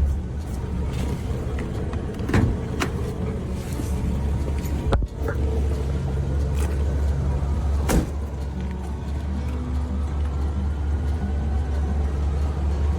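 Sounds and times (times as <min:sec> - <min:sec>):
car engine rumbling: 0:00.0 - 0:12.9.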